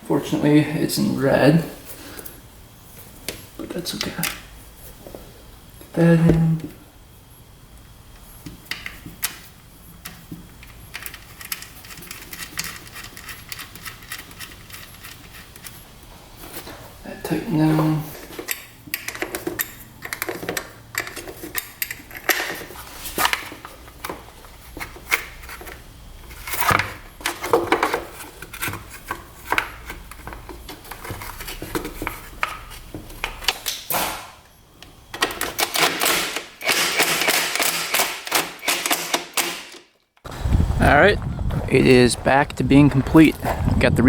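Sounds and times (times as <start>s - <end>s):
tools and metal parts clicking: 10.0s - 15.8s, 18.4s - 22.6s, 35.1s - 39.8s.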